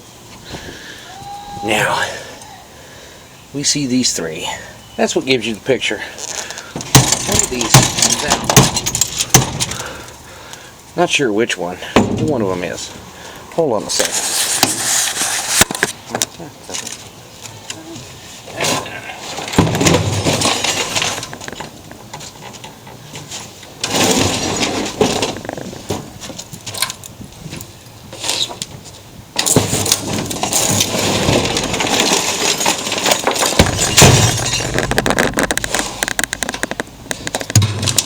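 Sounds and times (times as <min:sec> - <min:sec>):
debris clattering: 0:06.0 - 0:10.3, 0:18.5 - 0:38.0
sledgehammer smashing glass and plastic: 0:06.8 - 0:09.9, 0:19.4 - 0:21.3, 0:29.4 - 0:35.0.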